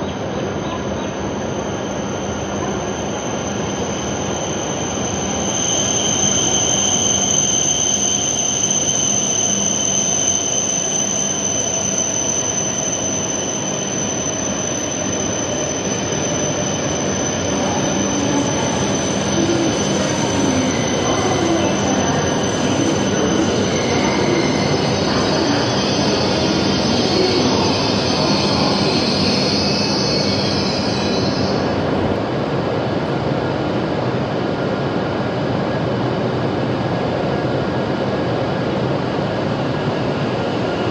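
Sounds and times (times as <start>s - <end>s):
train brake squeal: 0.0s - 32.0s
train wheels rumbling: 11.2s - 34.0s.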